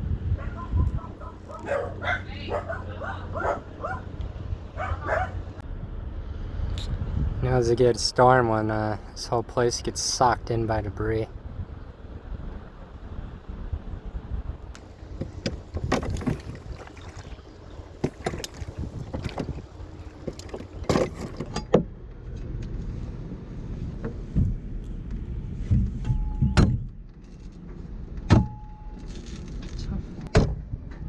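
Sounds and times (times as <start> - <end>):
constant low rumble: 0.0 - 31.0
gear knocking and clunking: 14.7 - 22.9.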